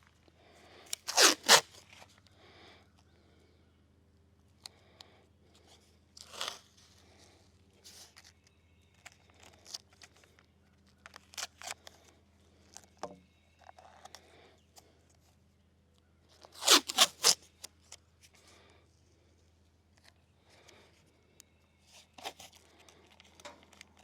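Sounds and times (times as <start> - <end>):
tape ripping off a roll: 0.9 - 1.8, 6.2 - 6.7, 16.5 - 17.5.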